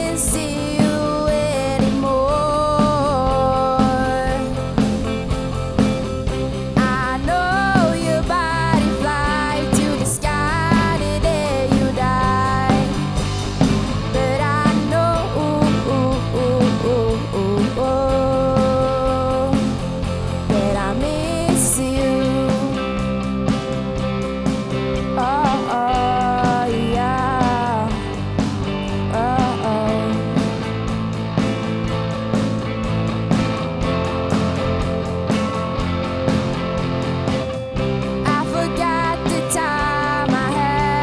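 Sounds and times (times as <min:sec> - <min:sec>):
person singing: 0:00.0 - 0:05.1, 0:06.8 - 0:13.2, 0:14.1 - 0:23.0, 0:25.2 - 0:28.2, 0:28.9 - 0:30.7, 0:38.2 - 0:41.0
rock band playing live: 0:00.0 - 0:41.0.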